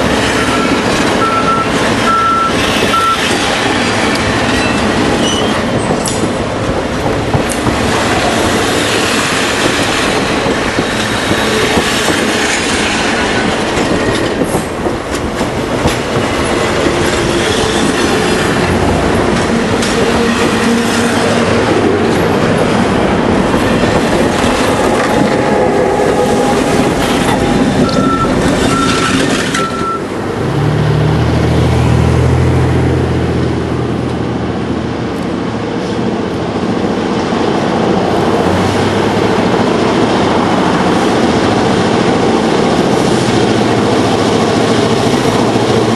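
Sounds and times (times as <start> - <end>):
clickety-clack over rail joints: 0.0 - 30.5, 33.3 - 45.9
train wheels on rails: 0.0 - 30.7, 33.3 - 45.9
diesel locomotive engine hum: 0.0 - 45.9
wheel squeal: 4.6 - 5.6, 27.8 - 30.0.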